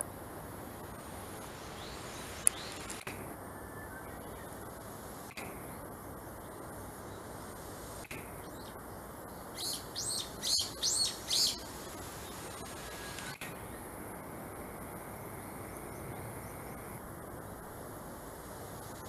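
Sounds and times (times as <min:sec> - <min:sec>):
steady outdoor hiss: 0:00.0 - 0:19.0
bird calling high notes: 0:09.6 - 0:11.7.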